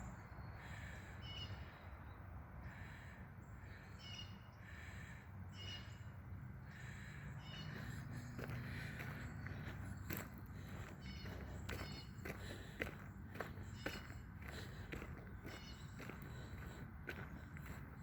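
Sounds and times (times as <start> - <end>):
bird calling: 3.6 - 6.1, 6.7 - 9.7, 10.6 - 12.8, 13.4 - 16.6.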